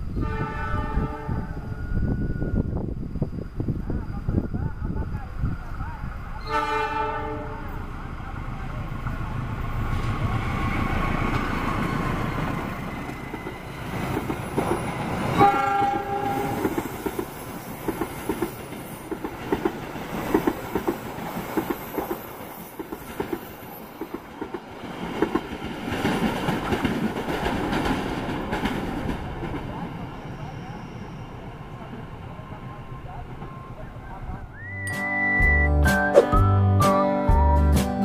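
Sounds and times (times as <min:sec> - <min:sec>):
train horn blast: 0:00.1 - 0:01.7, 0:06.4 - 0:07.8, 0:15.4 - 0:16.7
train wheels clicking over rail joints: 0:09.8 - 0:29.8.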